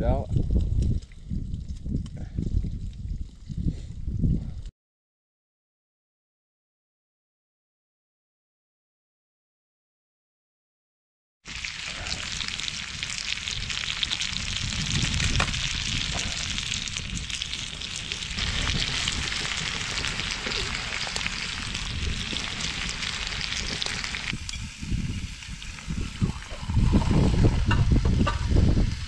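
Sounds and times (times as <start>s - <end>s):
carrots sizzling in butter: 11.5s - 26.2s.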